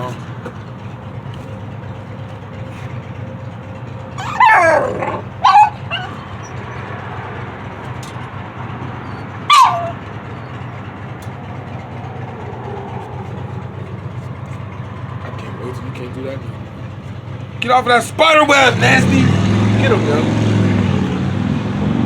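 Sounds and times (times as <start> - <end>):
dog barking: 4.2 - 6.6, 9.4 - 10.0.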